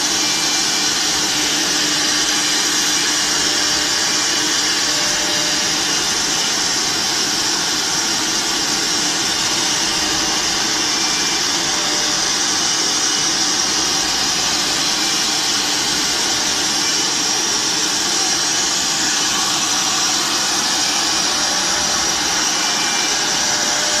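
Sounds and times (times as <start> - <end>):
cnc router running: 0.0 - 24.0.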